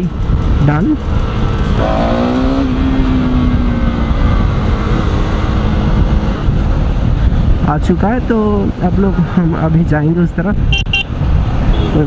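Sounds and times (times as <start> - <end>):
motorcycle engine: 0.0 - 7.2
wind rumble on microphone: 2.7 - 12.0.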